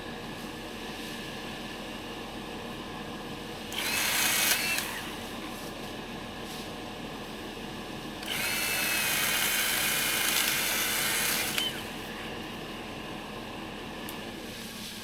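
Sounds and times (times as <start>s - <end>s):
power saw cutting brush: 3.7s - 5.3s, 8.2s - 12.1s.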